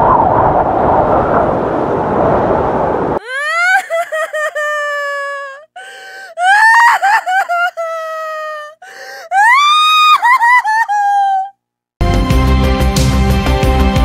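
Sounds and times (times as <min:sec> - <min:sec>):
high-pitched wailing cries: 0:03.2 - 0:11.6.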